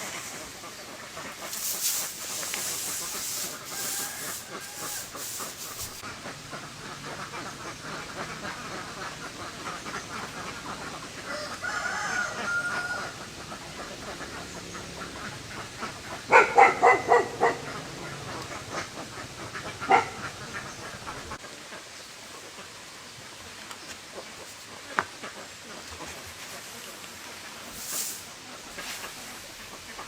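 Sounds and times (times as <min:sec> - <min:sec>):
poultry calling: 0:00.1 - 0:06.1, 0:07.1 - 0:21.4.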